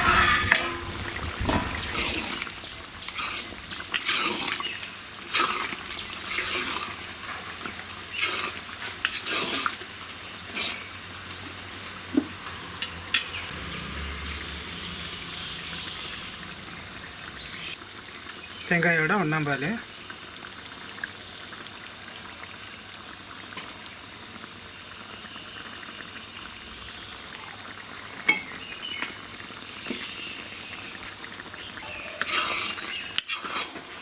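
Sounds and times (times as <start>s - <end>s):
spoon scraping metal pot: 0.0s - 17.8s, 29.8s - 34.0s
curry simmering hiss: 0.0s - 34.0s.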